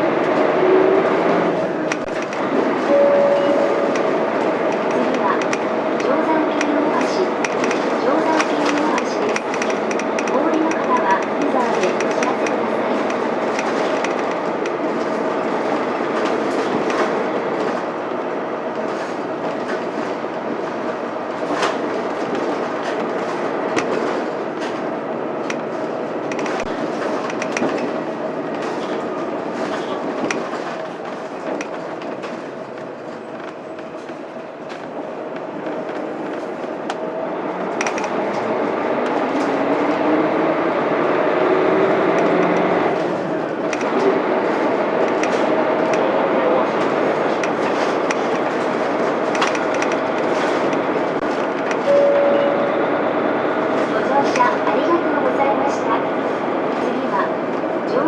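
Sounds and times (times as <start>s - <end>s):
bus diesel engine and road noise: 0.0s - 58.0s
body rattles and clicks: 1.9s - 2.7s, 3.9s - 17.9s, 18.8s - 37.0s, 46.7s - 51.9s
bus diesel engine running: 36.1s - 56.8s.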